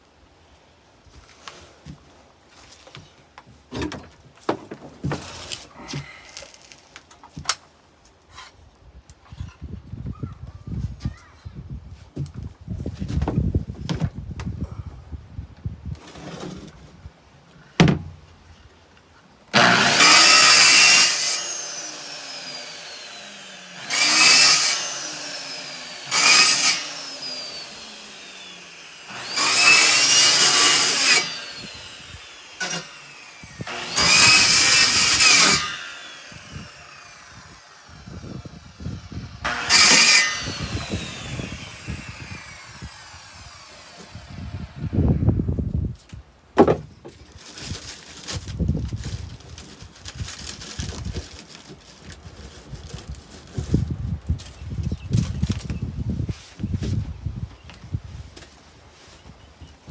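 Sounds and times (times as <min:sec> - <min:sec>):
power tool motor whining: 0:19.6 - 0:45.0.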